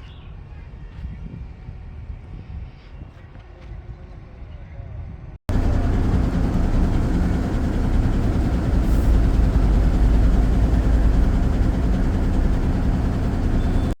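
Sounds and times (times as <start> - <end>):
lorry engine rumbling: 5.5 - 14.0.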